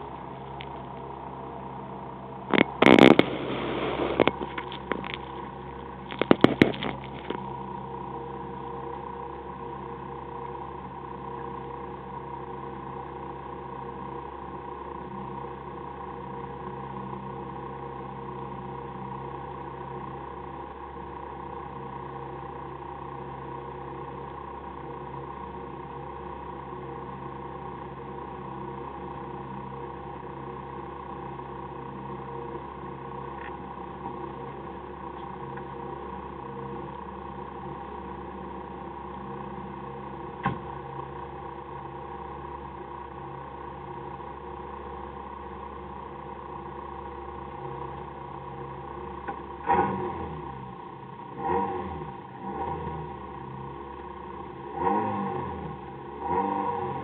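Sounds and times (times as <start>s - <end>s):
car engine idling: 0.0s - 57.0s
camera knocks and rattles: 6.1s - 7.4s.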